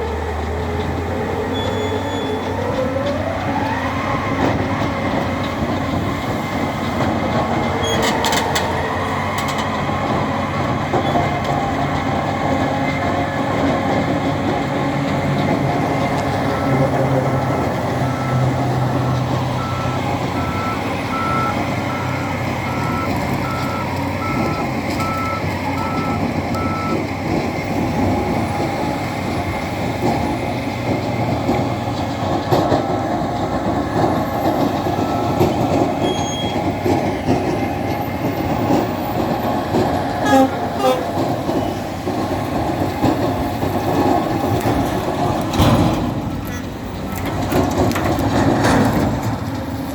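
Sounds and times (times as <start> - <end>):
loader engine running: 0.0 - 49.9
reversing alarm beeping: 16.4 - 27.1, 34.8 - 36.8.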